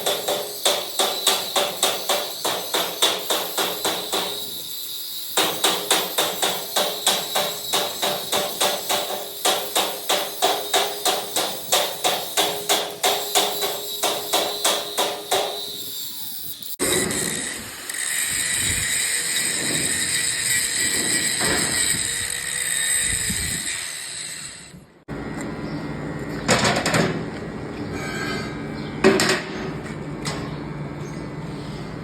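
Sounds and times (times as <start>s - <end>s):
metal being hammered: 0.0s - 4.5s, 5.4s - 15.6s
machine noise with high whine: 0.0s - 32.0s.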